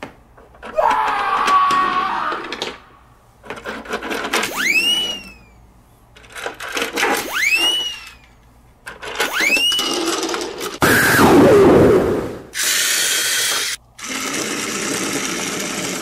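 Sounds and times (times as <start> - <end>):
cartoon rattle with rising whistle: 4.4 - 5.6, 7.2 - 8.3, 9.2 - 11.7.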